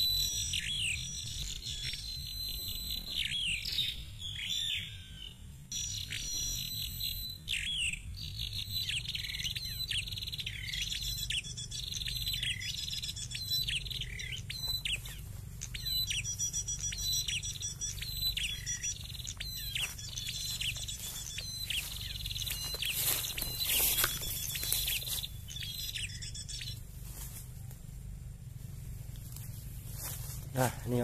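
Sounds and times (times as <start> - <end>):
thin high bird trills: 0.0 - 27.8
bird falling chirps: 8.8 - 26.8.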